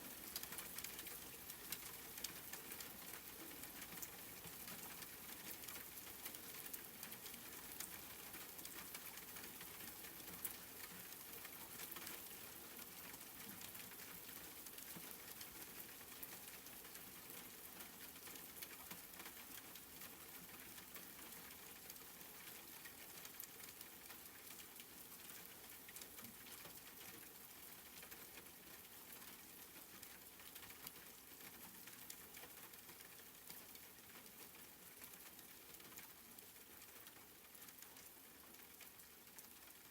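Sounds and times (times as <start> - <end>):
soft rain pattering: 0.0 - 39.9.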